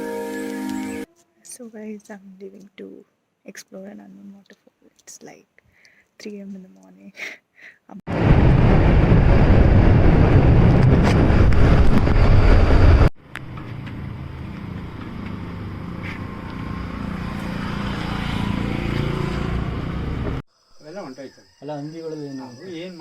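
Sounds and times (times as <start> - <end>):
wind rush on microphone: 8.1 - 13.2
vehicle running noise with low hum: 8.1 - 20.4.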